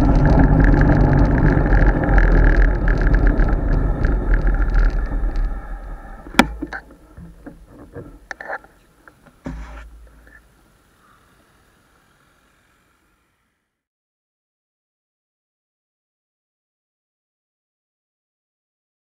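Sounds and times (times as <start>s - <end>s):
wind and road noise: 0.0s - 11.0s
small knocks and clicks: 6.2s - 10.4s.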